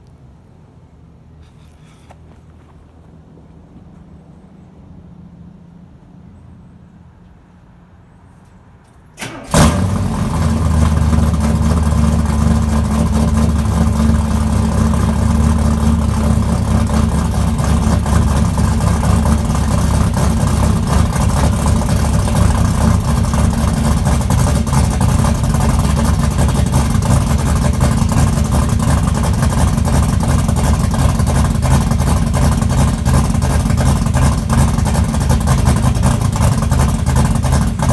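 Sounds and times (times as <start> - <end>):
car engine starting: 9.0 - 37.9
engine idling loudly: 9.5 - 37.9.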